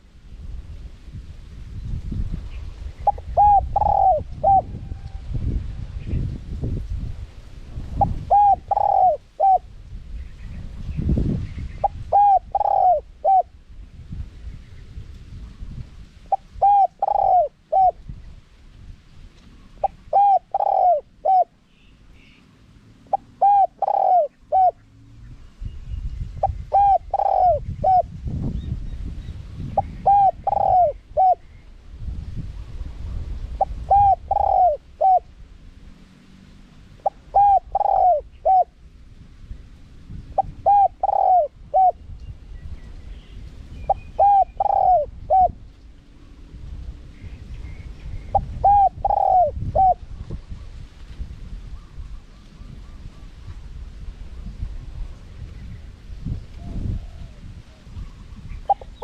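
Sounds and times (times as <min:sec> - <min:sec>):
dove cooing: 0:03.0 - 0:05.0, 0:08.0 - 0:09.7, 0:11.8 - 0:13.5, 0:16.3 - 0:18.0, 0:19.8 - 0:21.6, 0:23.1 - 0:24.8, 0:26.4 - 0:28.1, 0:29.8 - 0:31.4, 0:33.6 - 0:35.3, 0:37.0 - 0:38.8, 0:40.4 - 0:42.0, 0:43.9 - 0:45.6, 0:48.3 - 0:50.0, 0:56.6 - 0:59.0.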